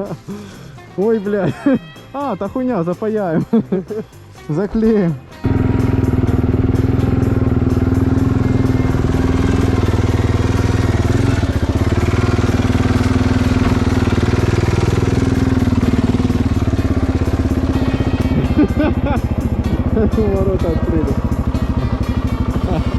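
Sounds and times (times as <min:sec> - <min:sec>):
motorcycle engine running: 0:05.4 - 0:22.9.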